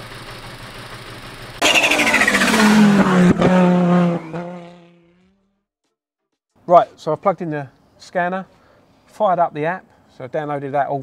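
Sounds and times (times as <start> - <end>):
car engine pass-by: 1.6 - 5.5.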